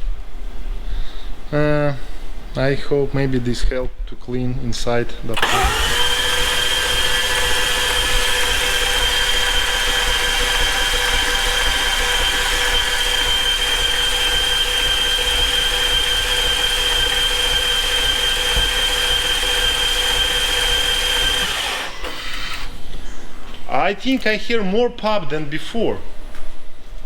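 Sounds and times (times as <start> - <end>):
man talking: 1.5 - 5.4, 23.7 - 26.1
engine cranking on starter motor: 5.3 - 23.0.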